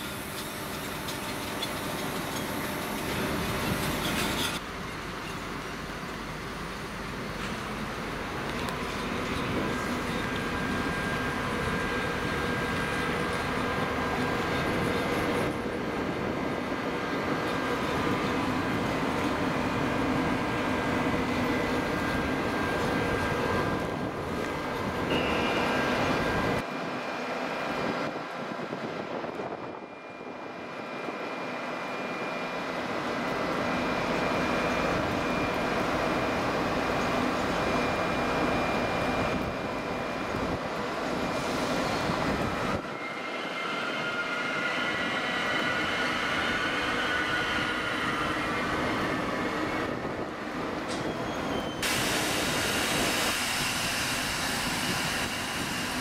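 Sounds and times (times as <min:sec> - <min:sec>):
train wheels rumbling: 0:00.0 - 0:26.7
thin whine: 0:17.8 - 0:26.7.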